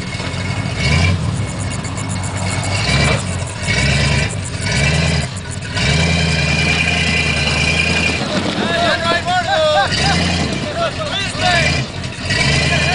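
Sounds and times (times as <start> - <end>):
off-road vehicle engine revving: 0.0 - 12.9.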